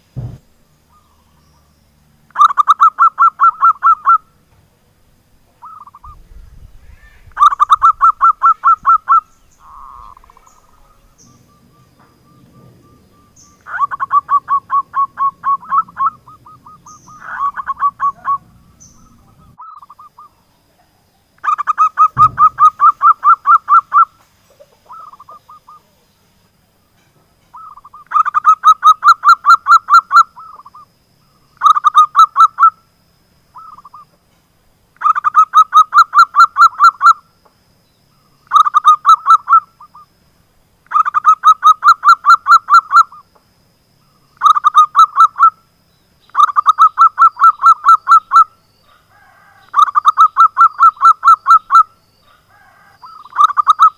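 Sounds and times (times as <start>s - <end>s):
dove cooing: 5.6s - 20.4s, 21.4s - 26.0s, 46.4s - 53.9s.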